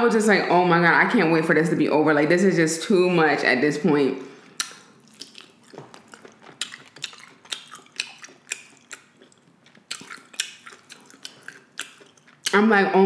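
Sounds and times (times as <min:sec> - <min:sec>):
wet chewing mouth sounds: 0:04.6 - 0:12.6.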